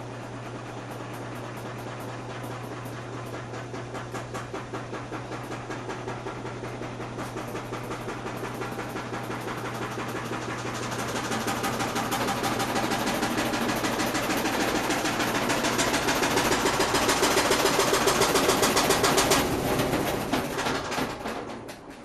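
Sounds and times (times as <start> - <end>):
washing machine humming: 0.0 - 22.0.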